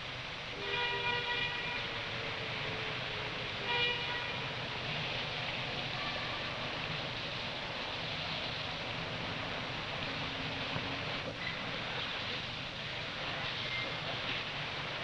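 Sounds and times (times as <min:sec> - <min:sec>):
train rumbling past: 0:00.0 - 0:15.0
train horn: 0:00.5 - 0:02.0, 0:03.5 - 0:04.6.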